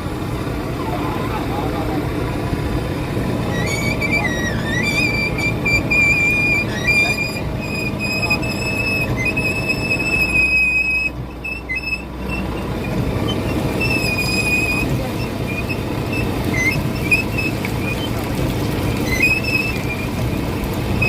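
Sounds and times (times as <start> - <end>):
fishing boat running: 0.0 - 21.0
thin high whistle-like tone: 3.5 - 12.1.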